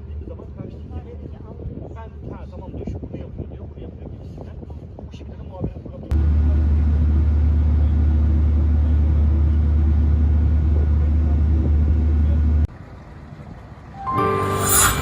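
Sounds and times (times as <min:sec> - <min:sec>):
low engine drone: 0:06.1 - 0:15.0
music: 0:14.0 - 0:15.0.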